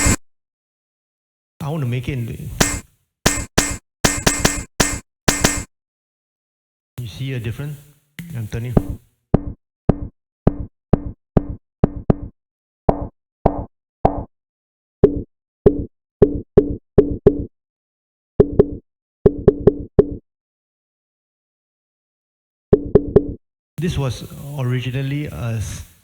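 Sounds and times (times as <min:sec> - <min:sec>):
boomy synthesized drum hits: 0:00.0 - 0:00.2, 0:02.6 - 0:05.7.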